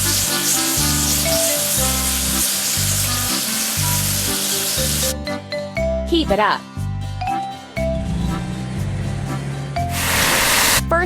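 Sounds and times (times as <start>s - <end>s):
music with repeating bass line: 0.0s - 2.2s, 4.8s - 11.0s
water spray jet hissing: 0.0s - 5.2s, 10.0s - 10.8s.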